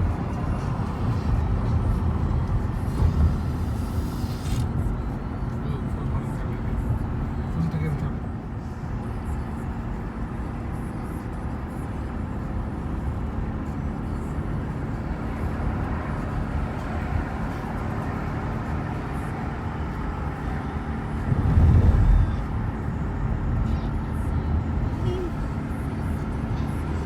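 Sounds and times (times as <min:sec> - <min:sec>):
car road and engine noise: 0:00.0 - 0:27.0
low rumble: 0:21.2 - 0:23.8.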